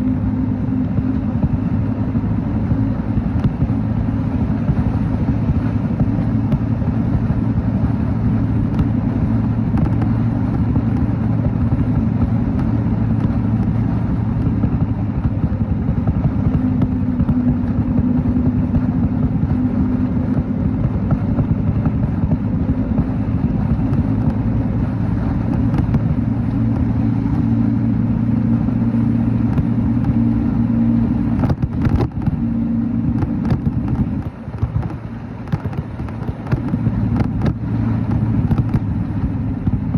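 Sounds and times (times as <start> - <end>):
motorcycle engine running: 0.0 - 39.9
road and wind rumble: 0.0 - 39.9.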